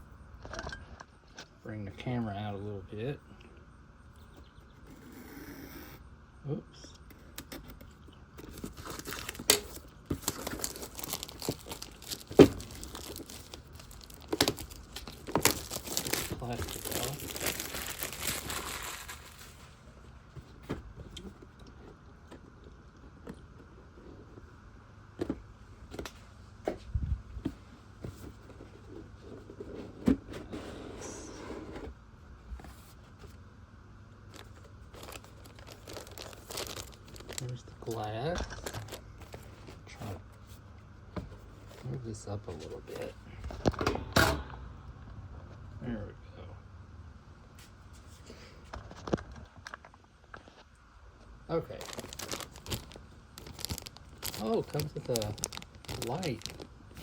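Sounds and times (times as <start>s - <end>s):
hands rustling plastic packaging: 8.4s - 19.8s, 34.3s - 39.9s, 51.6s - 57.0s
plastic shrink wrap crinkling: 8.4s - 19.8s, 34.3s - 39.8s, 51.6s - 57.0s.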